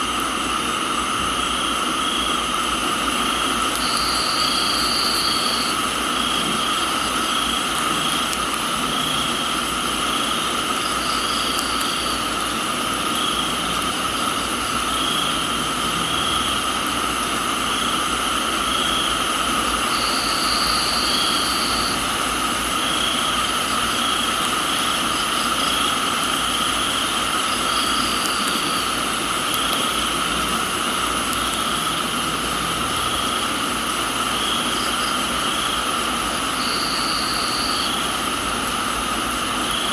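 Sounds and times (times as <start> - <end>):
crickets and insects chirring: 0.0 - 39.9
rain hiss: 0.0 - 39.9
high insect trill: 0.4 - 38.5.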